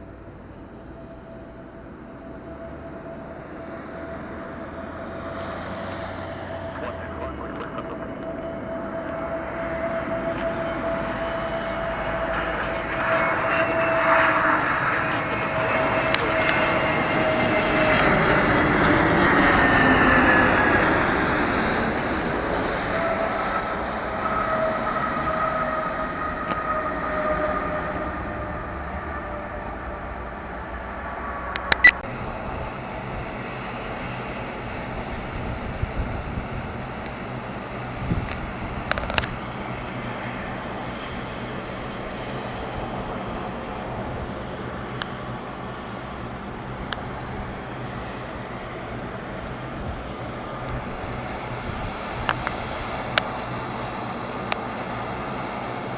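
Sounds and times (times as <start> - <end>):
jet airliner passing by: 0.0 - 55.9
sharp clicks: 31.6 - 32.0.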